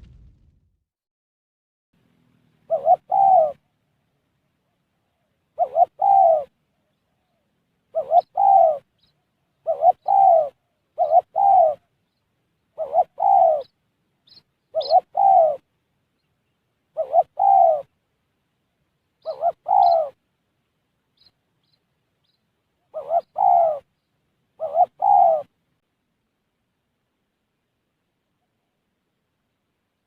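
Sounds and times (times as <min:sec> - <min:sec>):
dove cooing: 0:02.4 - 0:03.7, 0:04.6 - 0:12.0, 0:12.7 - 0:15.7, 0:16.9 - 0:18.0, 0:19.2 - 0:20.2, 0:22.8 - 0:23.9, 0:24.6 - 0:25.5
small bird chirping: 0:04.8 - 0:18.0, 0:19.2 - 0:25.5.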